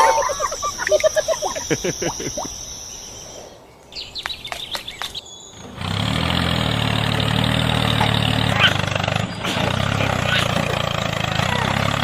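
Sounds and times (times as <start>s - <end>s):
small engine humming: 5.6s - 12.0s.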